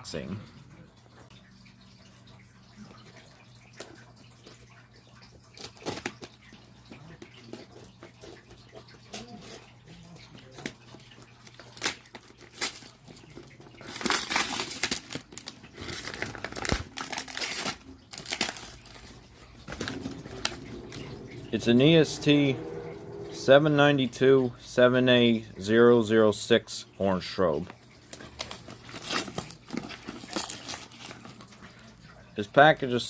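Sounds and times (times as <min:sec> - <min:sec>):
packaging rustling and tearing: 0:11.4 - 0:21.4, 0:28.1 - 0:31.6.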